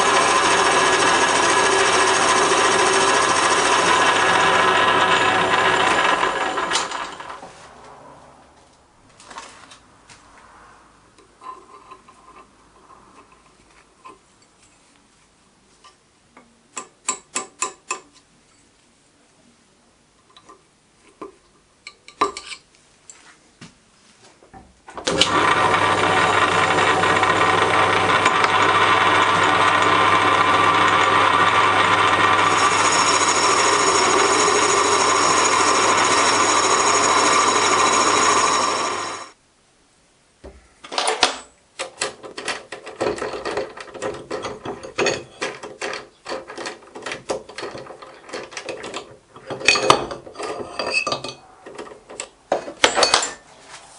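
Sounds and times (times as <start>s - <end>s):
machine tool motor hum: 0.0s - 7.4s, 25.3s - 39.4s.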